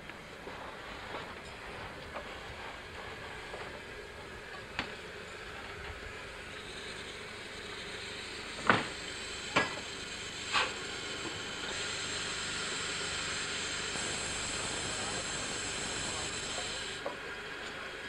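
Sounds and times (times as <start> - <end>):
steam locomotive hissing: 0.0 - 18.0
sharp steam bursts: 6.6 - 17.0.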